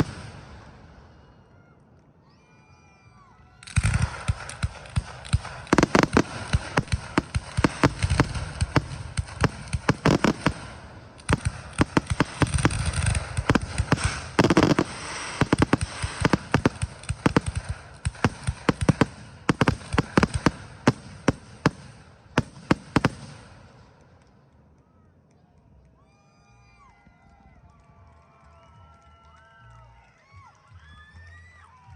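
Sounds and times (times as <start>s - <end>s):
fireworks bursts and bangs: 0.0s - 1.3s, 3.5s - 24.6s
fireworks crackle: 0.0s - 1.3s, 3.6s - 24.6s.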